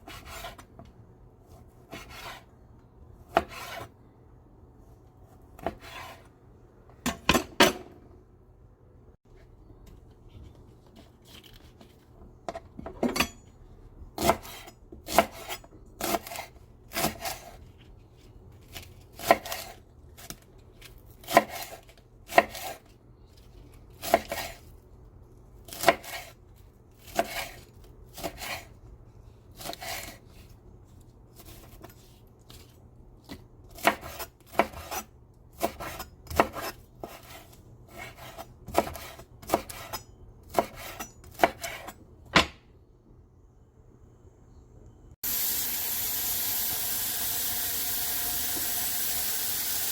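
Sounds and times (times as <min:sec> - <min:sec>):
knife chopping on cutting board: 0:01.9 - 0:02.5, 0:03.3 - 0:03.9, 0:05.6 - 0:06.3, 0:14.2 - 0:17.6, 0:21.2 - 0:22.8, 0:33.3 - 0:42.6.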